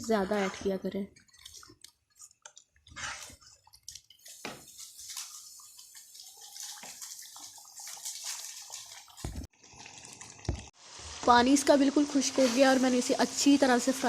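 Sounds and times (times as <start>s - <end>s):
spoon scraping while stirring: 0.1s - 5.3s
chicken sizzling in a pot: 9.5s - 14.0s.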